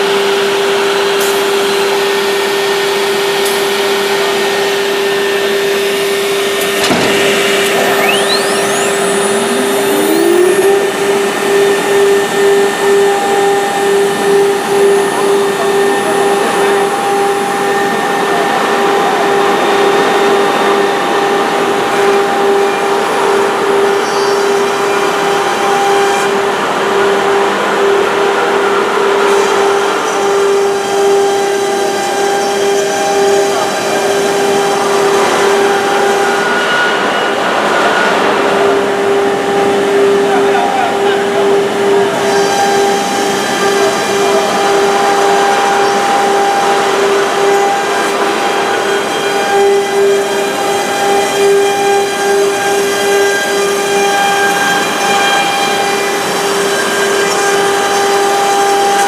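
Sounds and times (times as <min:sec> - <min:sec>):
woodworking machine whine: 0:00.0 - 0:59.0
motor spinning up: 0:06.6 - 0:12.5.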